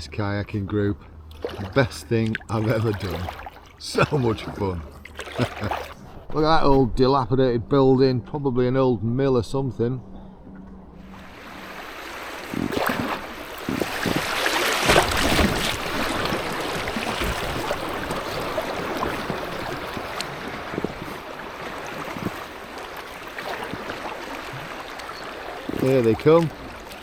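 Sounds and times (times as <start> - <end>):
rushing river water: 1.2 - 6.0, 11.0 - 27.0
splashes on water: 1.3 - 6.0, 11.1 - 27.0.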